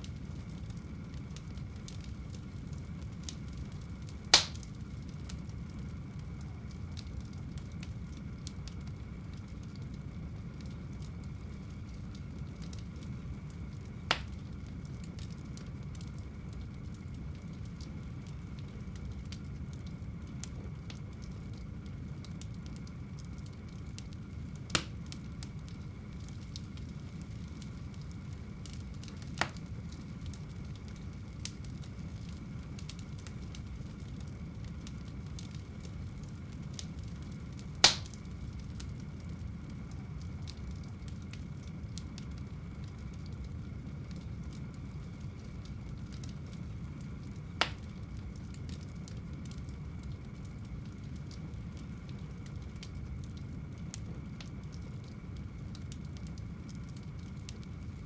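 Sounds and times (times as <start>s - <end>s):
wood fire burning: 0.0s - 58.0s
logs popping: 4.3s - 4.7s, 14.1s - 14.4s, 24.8s - 25.0s, 37.8s - 38.2s, 47.6s - 47.8s.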